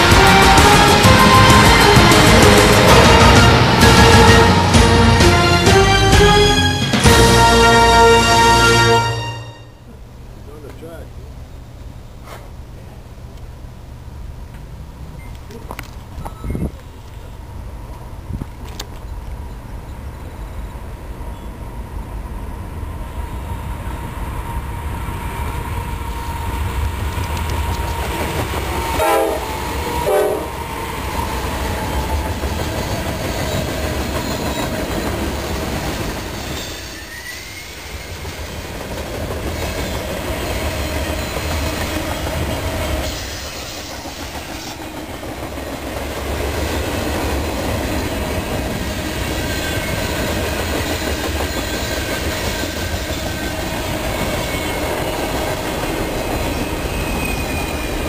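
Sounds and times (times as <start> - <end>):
freight cars rumbling on rails: 0.0 - 9.0, 9.8 - 58.0
locomotive horn blasts: 0.0 - 10.0, 28.9 - 30.6.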